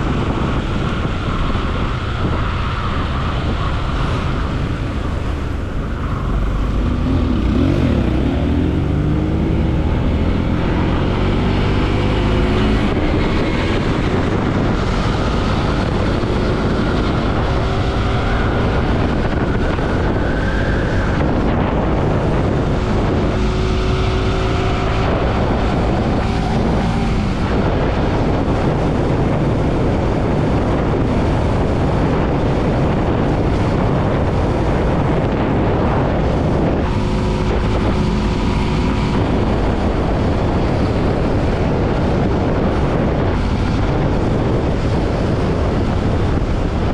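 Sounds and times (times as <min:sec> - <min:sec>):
wind on microphone: 0:00.0 - 0:46.9
motorcycle engine running: 0:04.0 - 0:20.3.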